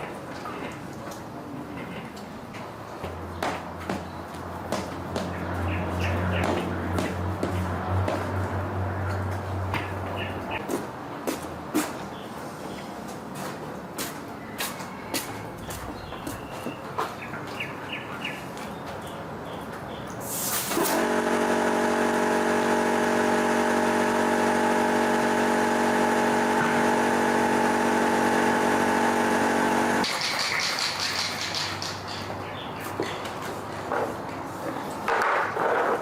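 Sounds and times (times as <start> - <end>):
motor-driven machine running: 20.7 - 30.1.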